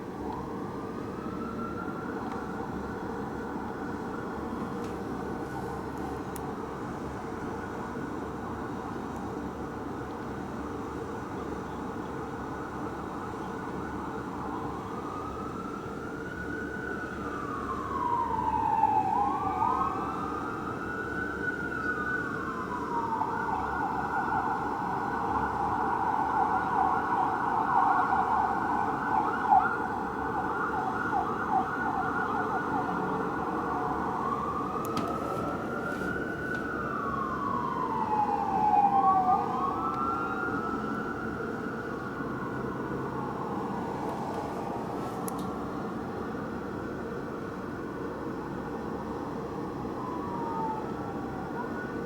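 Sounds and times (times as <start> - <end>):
fire engine siren wailing: 0.0 - 52.0
siren rapid yelp: 25.2 - 45.0.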